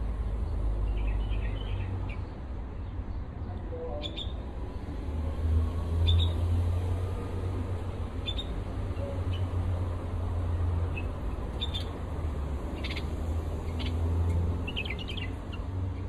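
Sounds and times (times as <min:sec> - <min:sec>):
small bird chirping: 0:08.2 - 0:08.6, 0:10.9 - 0:12.0, 0:12.7 - 0:15.7.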